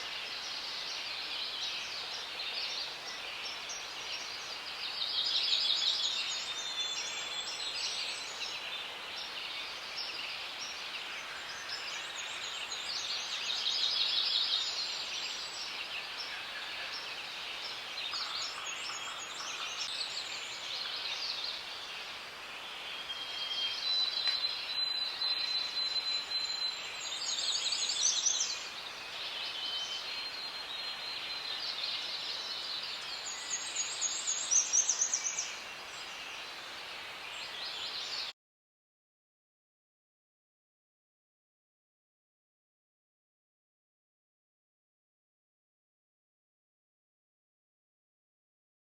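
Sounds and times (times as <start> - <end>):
birds singing and calling: 0.1 - 22.1, 22.8 - 38.3.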